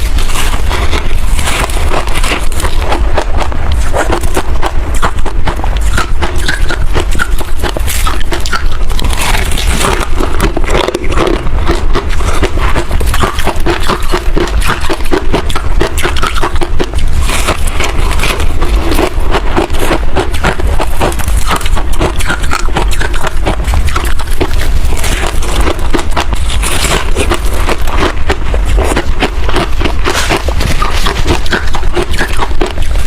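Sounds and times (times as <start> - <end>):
mouth crunching frost: 0.0 - 33.0.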